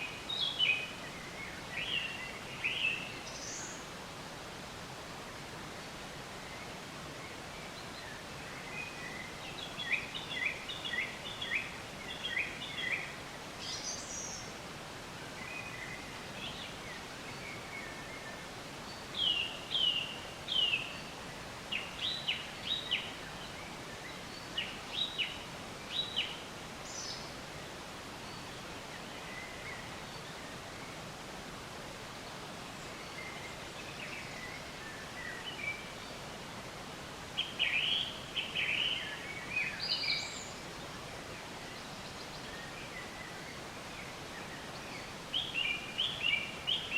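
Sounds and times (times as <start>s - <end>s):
outdoor hiss: 0.0s - 46.9s
songbirds chirping: 0.0s - 46.9s.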